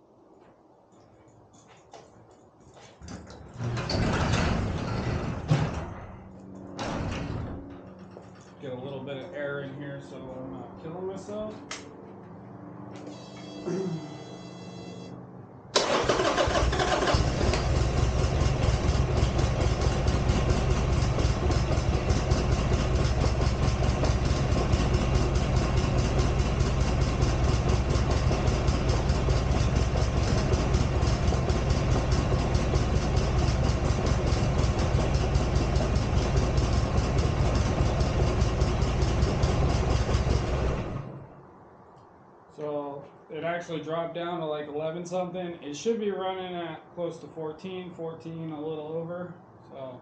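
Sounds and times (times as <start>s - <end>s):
motorcycle engine starting and idling: 3.0s - 9.5s, 15.7s - 41.4s.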